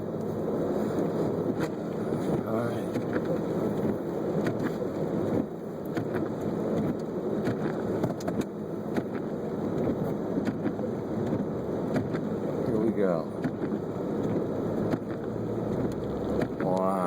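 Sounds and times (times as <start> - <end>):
car engine running: 0.0 - 17.0
noisy cabin hum: 0.0 - 17.0
light ticks: 13.4 - 16.9.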